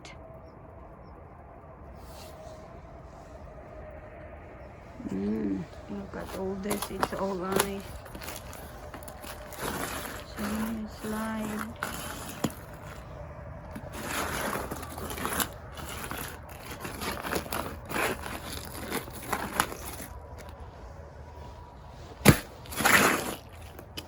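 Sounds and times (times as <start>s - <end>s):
footsteps crunching on ice: 5.7s - 24.0s.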